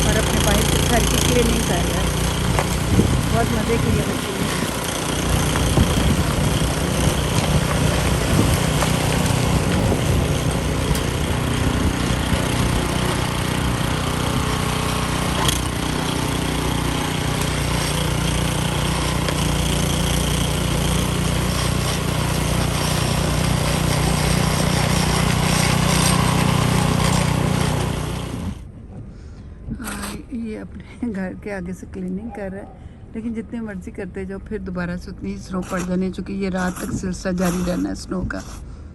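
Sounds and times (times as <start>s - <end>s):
snowblower engine droning: 0.0s - 28.8s.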